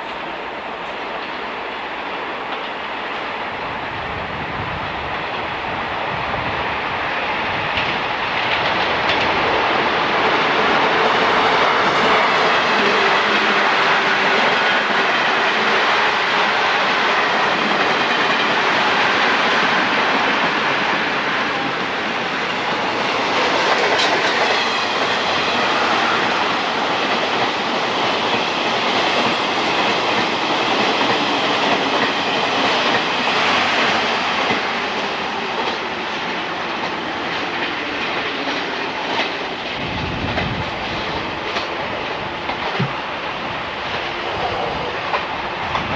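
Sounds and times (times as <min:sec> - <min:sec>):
train wheels rumbling on rails: 0:00.0 - 0:45.9
clacks over rail joints: 0:07.7 - 0:12.5.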